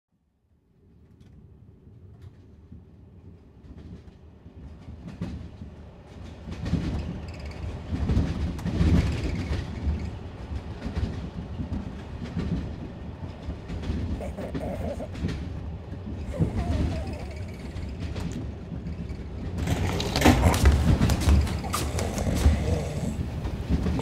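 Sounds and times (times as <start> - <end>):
train rumbling: 0.8 - 24.0.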